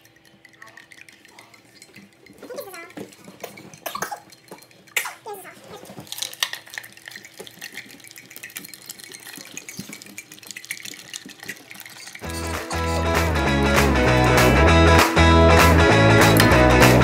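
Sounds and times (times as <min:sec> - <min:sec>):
water running from a tap: 0:00.0 - 0:05.4
dishes and utensils clinking: 0:00.0 - 0:15.1
guitar music: 0:12.2 - 0:17.0.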